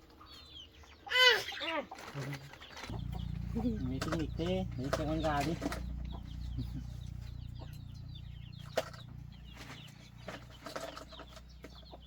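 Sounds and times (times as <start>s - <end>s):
chickens clucking and peeping: 0.0s - 12.0s.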